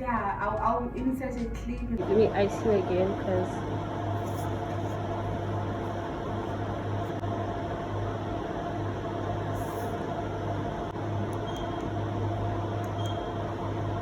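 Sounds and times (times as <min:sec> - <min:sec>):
machine electrical hum: 0:00.0 - 0:14.0.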